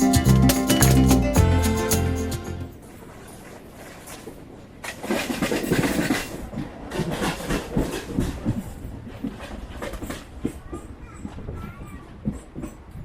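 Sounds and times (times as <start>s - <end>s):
train wheels clattering over rail joints: 4.0s - 13.0s.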